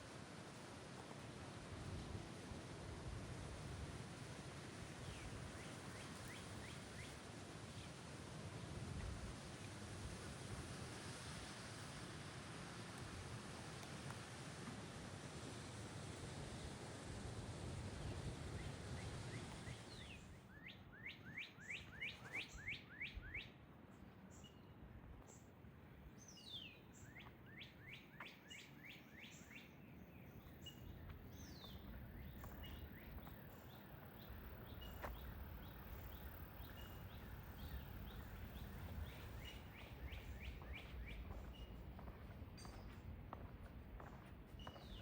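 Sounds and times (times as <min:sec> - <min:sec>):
songbird whistling: 0:20.0 - 0:23.5, 0:30.4 - 0:42.9.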